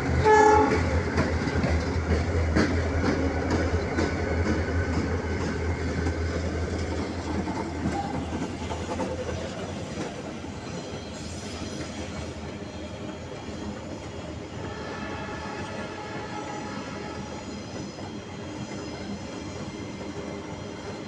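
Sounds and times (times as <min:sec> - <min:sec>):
train wheels clattering over rail joints: 0:00.0 - 0:14.4.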